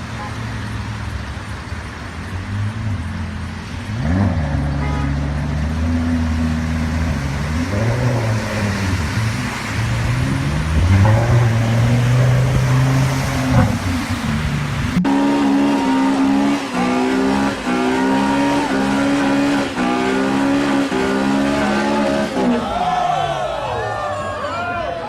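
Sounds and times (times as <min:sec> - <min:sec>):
car engine revving: 0:00.0 - 0:22.7.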